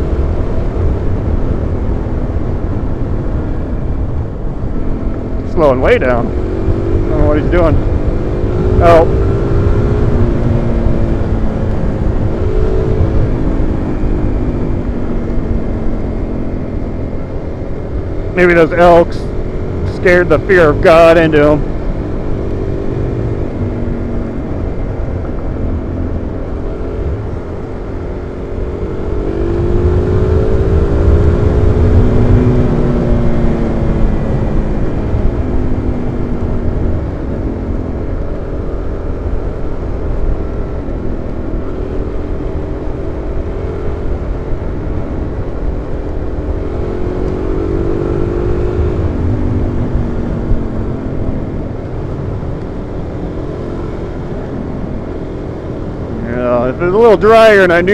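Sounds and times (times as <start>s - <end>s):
motorcycle engine accelerating: 0.0s - 57.9s
wind rush on microphone: 20.8s - 57.9s.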